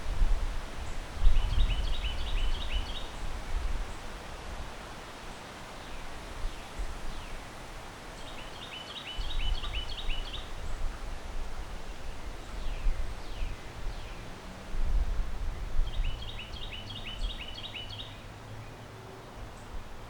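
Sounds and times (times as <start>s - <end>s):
rustling leaves: 0.0s - 20.0s
wind gusting through trees: 0.0s - 20.0s
bird chirping: 15.6s - 19.8s.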